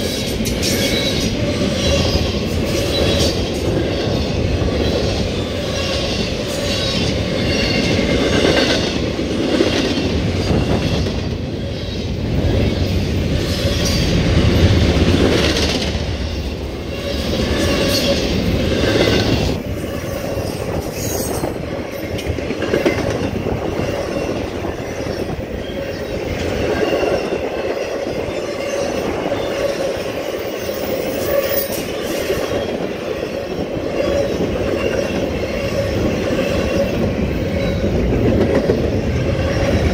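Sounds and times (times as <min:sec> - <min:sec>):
freight train rumbling and rattling: 0:00.0 - 0:39.9.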